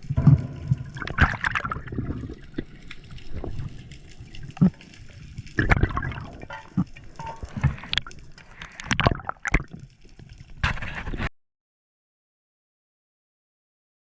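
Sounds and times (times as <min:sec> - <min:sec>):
splashes: 0:00.0 - 0:09.8
water gurgling and sloshing: 0:00.0 - 0:11.3.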